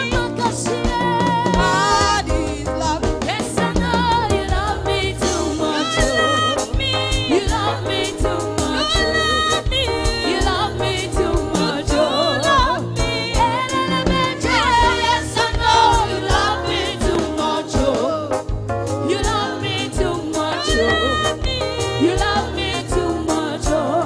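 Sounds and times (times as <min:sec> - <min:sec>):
band with drum beat and bass: 0:00.0 - 0:24.0
person singing: 0:19.2 - 0:24.0.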